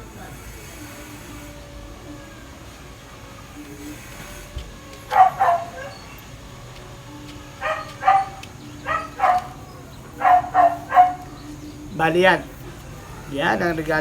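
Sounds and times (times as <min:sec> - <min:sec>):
dog barking: 0:05.0 - 0:06.4, 0:07.5 - 0:11.6.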